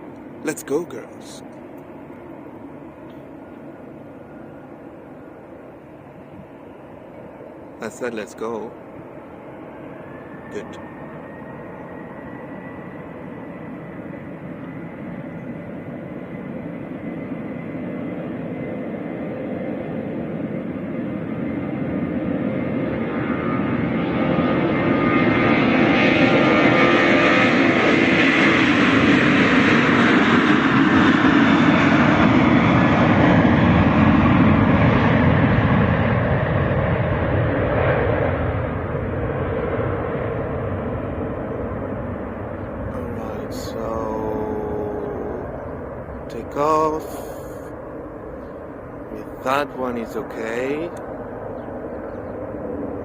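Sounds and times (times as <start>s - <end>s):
jet engines at takeoff power: 0.0s - 53.0s.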